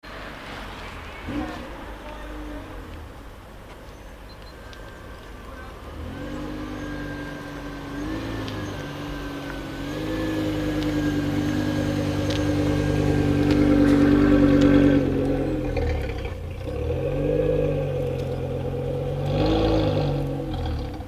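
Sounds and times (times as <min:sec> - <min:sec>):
car engine running: 0:05.0 - 0:21.0.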